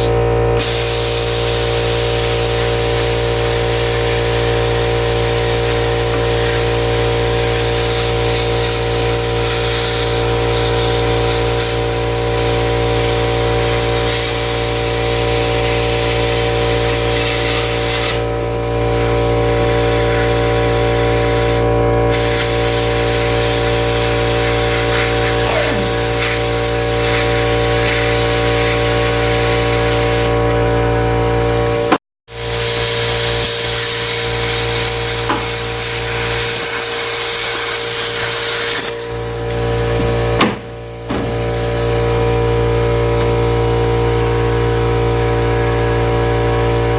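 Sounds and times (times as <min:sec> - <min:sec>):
plasma cutter hissing: 0:00.0 - 0:46.9
machine hum: 0:38.8 - 0:46.9.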